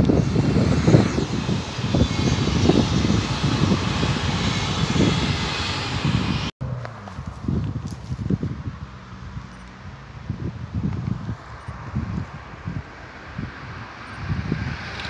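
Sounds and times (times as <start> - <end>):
faint high whine: 0.0 - 6.5
train wheels rumbling on rail: 0.0 - 6.5
wind buffeting microphone: 0.0 - 6.5, 7.1 - 15.0.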